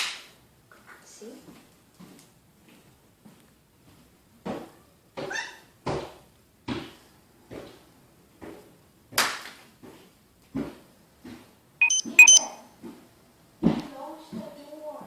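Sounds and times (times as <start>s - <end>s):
high beep-like bird call: 11.8s - 12.6s.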